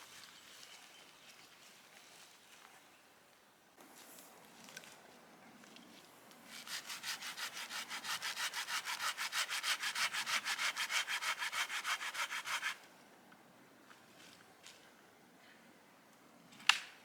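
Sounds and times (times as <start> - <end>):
hand saw cutting wood: 6.5 - 12.9.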